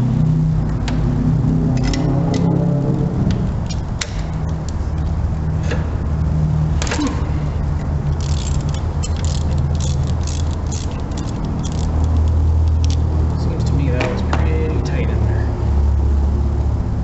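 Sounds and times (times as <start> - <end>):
ratchet clicking and clanking: 3.3 - 5.2, 7.8 - 14.2.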